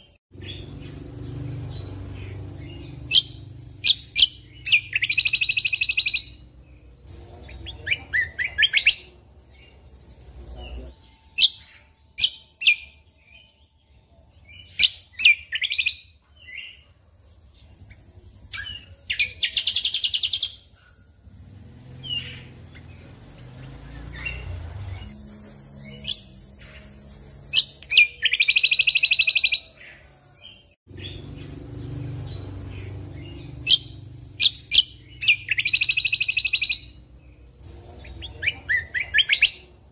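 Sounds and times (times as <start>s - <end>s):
bird trilling: 0.0s - 10.0s, 22.0s - 25.2s, 27.5s - 39.9s
sharp bird chirps: 0.0s - 39.9s.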